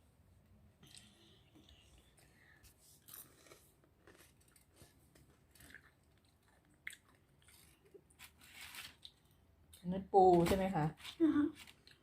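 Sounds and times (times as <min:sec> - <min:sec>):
person chewing crispy food: 0:00.8 - 0:09.8, 0:11.6 - 0:12.0.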